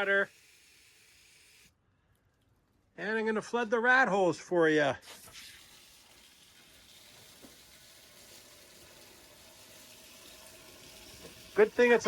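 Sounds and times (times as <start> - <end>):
water running from garden hose: 0.0 - 1.7, 5.0 - 12.0.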